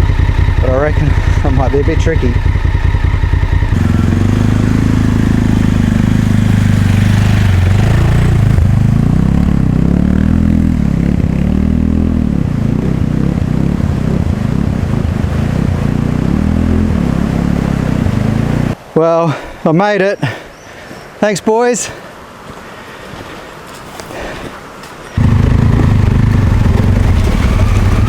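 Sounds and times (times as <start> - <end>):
motorcycle engine at low revs: 0.0 - 18.8, 25.2 - 28.0.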